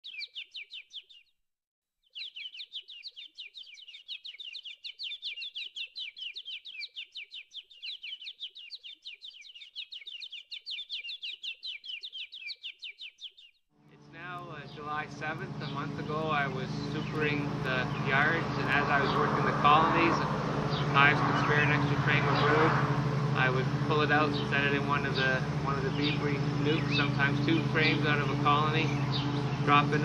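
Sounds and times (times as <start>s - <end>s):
bird chirping in short notes: 0.0s - 1.3s, 2.1s - 13.6s.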